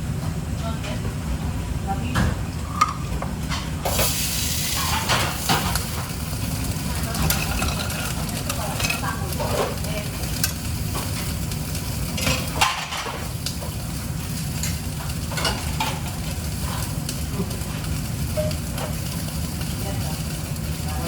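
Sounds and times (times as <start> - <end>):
steady low hum: 0.0 - 21.0
utensils scraping and clinking: 3.9 - 11.4.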